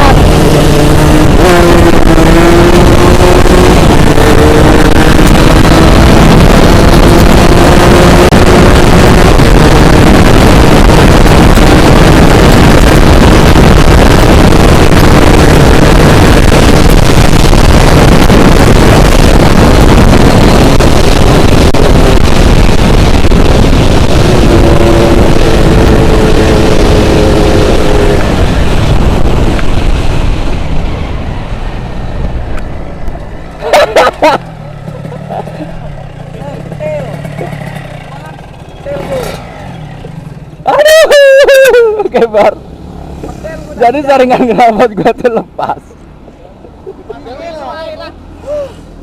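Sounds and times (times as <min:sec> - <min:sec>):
wind rushing over microphone: 0:00.0 - 0:34.4
motorcycle engine: 0:00.0 - 0:41.4, 0:42.5 - 0:44.3.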